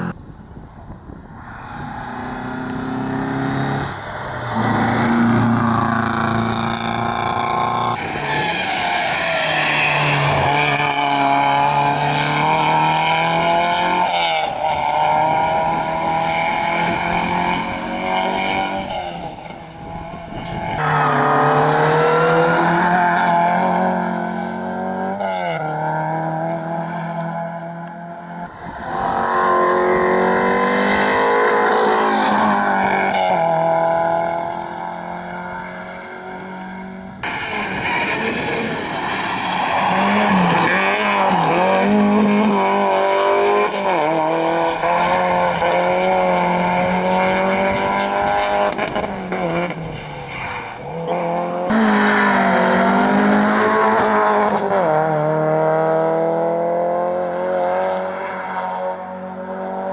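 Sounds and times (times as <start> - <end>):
rally car engines revving: 0.9 - 59.9
tyre squeal: 44.6 - 54.3.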